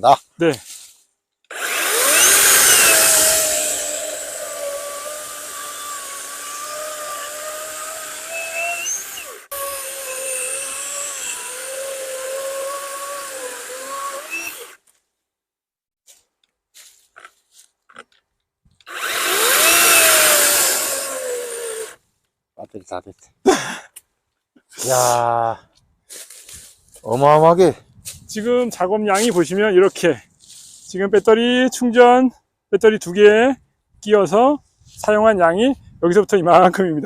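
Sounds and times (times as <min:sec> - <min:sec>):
chainsaw cutting log: 0:01.5 - 0:14.8, 0:18.8 - 0:22.0.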